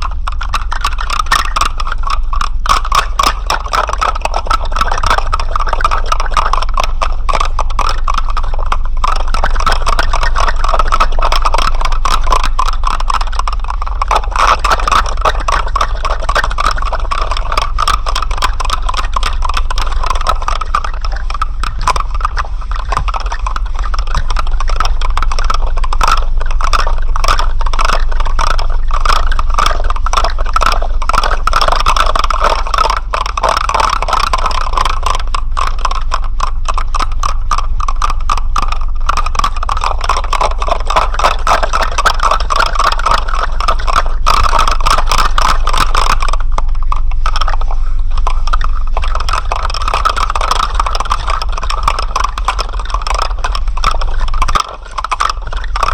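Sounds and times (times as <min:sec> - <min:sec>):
rapid rattling clicks: 0:00.0 - 0:55.9
steady low hum: 0:00.0 - 0:55.9.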